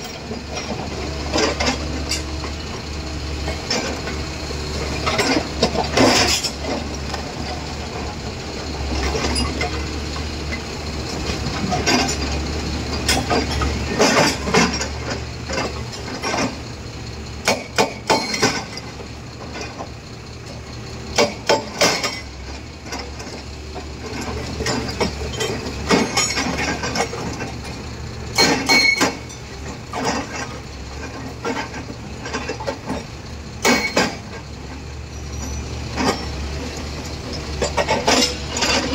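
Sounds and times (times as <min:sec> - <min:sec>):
excavator engine running: 0:00.0 - 0:38.9
hydraulic breaker metallic blows: 0:28.3 - 0:30.1.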